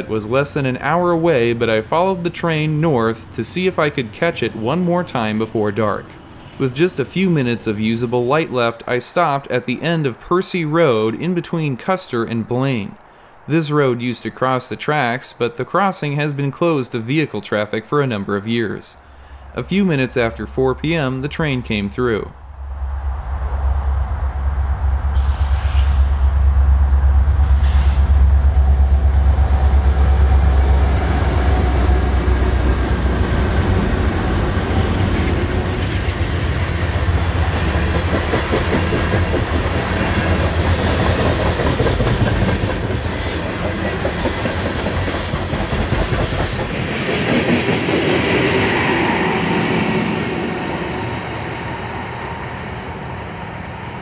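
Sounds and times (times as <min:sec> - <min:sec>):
train cars rumbling past: 0:19.0 - 0:54.0
wheels clacking over rail joints: 0:34.6 - 0:48.4.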